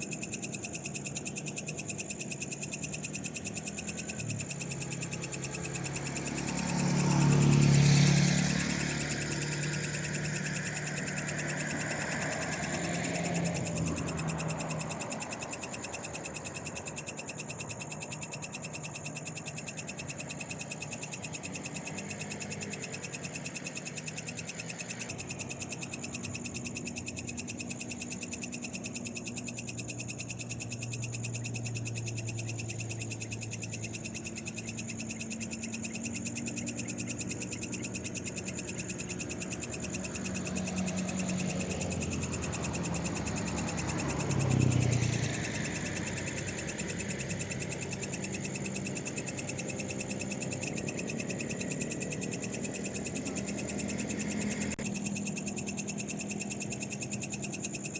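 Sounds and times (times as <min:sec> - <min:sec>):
frogs calling: 0:00.0 - 0:57.9.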